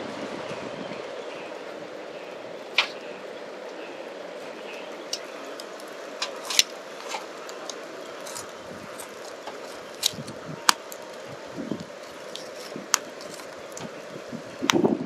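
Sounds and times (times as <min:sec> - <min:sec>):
creek rushing: 0:00.0 - 0:15.0
fire crackling and snapping: 0:00.0 - 0:15.0.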